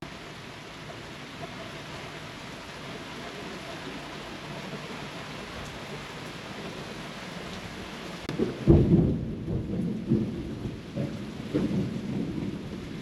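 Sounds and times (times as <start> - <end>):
heavy rain hissing: 0.0 - 13.0
thunder clap and rumble: 8.3 - 13.0.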